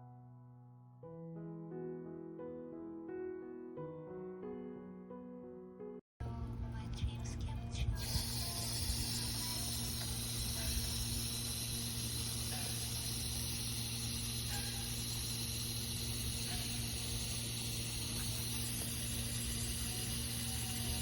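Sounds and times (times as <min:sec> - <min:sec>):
steady low hum: 0:06.2 - 0:21.0
high hiss: 0:08.0 - 0:21.0.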